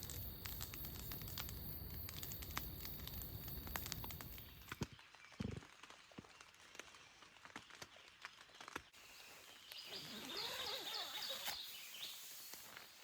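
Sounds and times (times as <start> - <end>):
faint clicks: 0.0 - 4.9
soft outdoor background noise: 8.8 - 13.0
bird chirping: 9.0 - 12.5.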